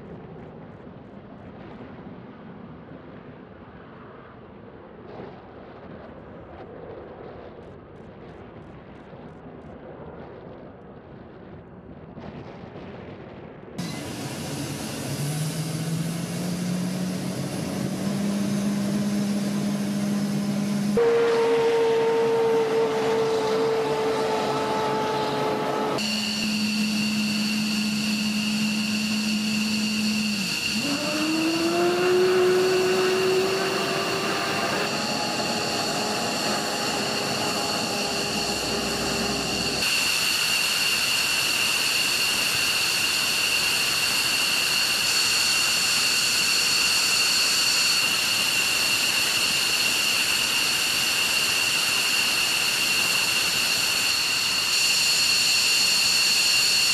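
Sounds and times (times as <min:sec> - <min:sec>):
engine spooling up: 0:13.8 - 0:56.9
jet engines whining: 0:13.8 - 0:56.9
rush of noise: 0:13.8 - 0:56.9.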